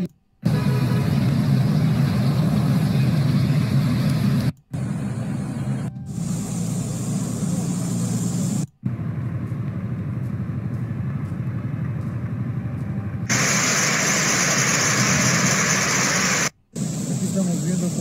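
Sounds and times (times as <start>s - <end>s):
low steady rumble: 0.5s - 14.0s
heavy rain: 13.3s - 16.5s.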